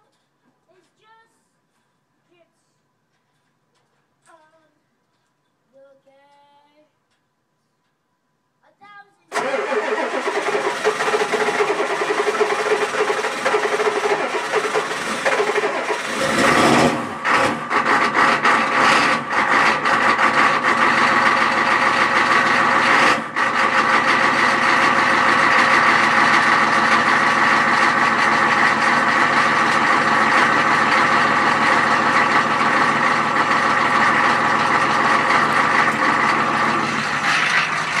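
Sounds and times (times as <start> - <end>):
diesel engine cranking: 9.3 - 38.0
diesel engine running unevenly: 9.4 - 38.0.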